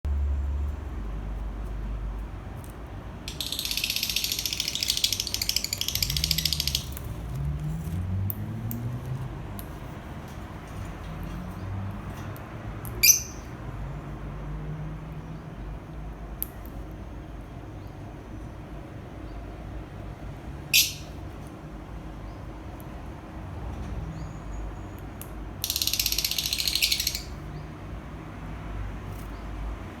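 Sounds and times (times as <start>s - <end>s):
lovebirds chattering: 3.3s - 7.3s, 20.8s - 21.1s, 25.7s - 27.7s.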